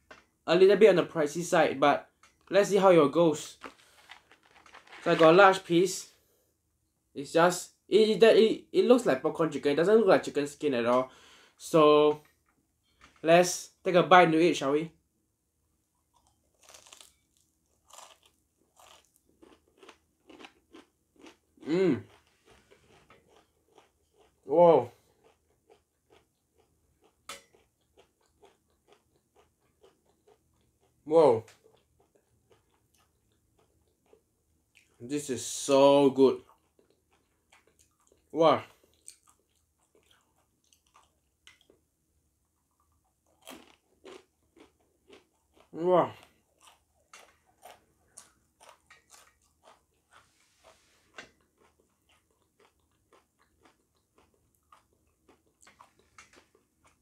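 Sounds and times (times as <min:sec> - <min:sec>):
person chewing crispy chicken: 0:03.5 - 0:05.2, 0:16.0 - 0:35.0, 0:36.4 - 0:41.8, 0:42.4 - 0:57.0.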